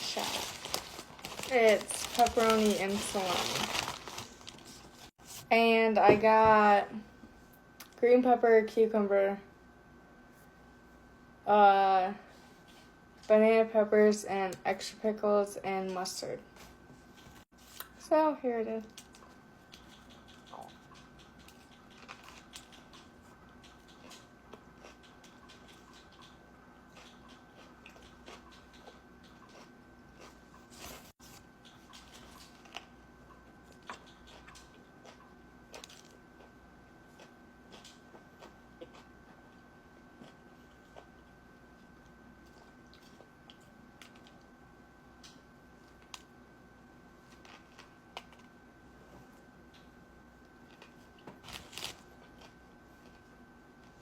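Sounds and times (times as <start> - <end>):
sandwich wrapper crackling: 0.0 - 5.1, 50.8 - 52.6
faint steady hum: 0.0 - 54.0
person chewing food: 19.0 - 44.5.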